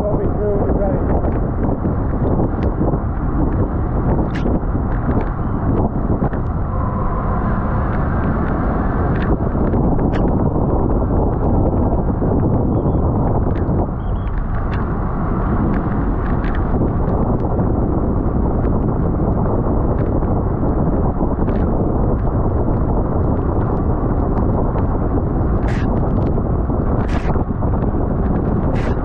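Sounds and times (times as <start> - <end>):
wind roaring on microphone: 0.0 - 29.0.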